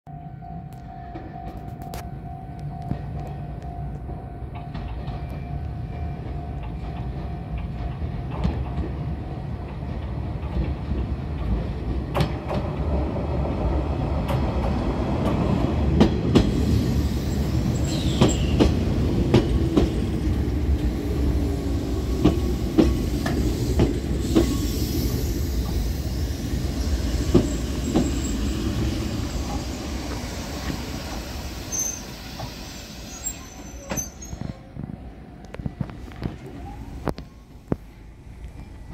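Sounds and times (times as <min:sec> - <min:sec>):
electric train rumble: 0:00.1 - 0:38.9
brake squeal: 0:31.6 - 0:34.5.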